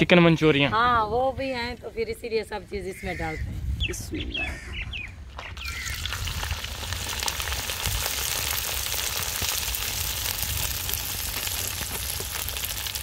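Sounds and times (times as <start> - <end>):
vegetables sizzling in hot oil: 5.6 - 13.0.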